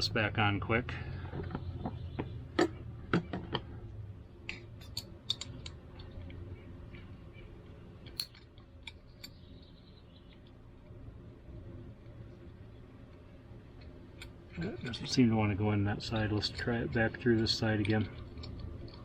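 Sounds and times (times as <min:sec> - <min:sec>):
small metal parts clicking: 0:04.5 - 0:06.4, 0:08.0 - 0:09.4, 0:16.0 - 0:19.0.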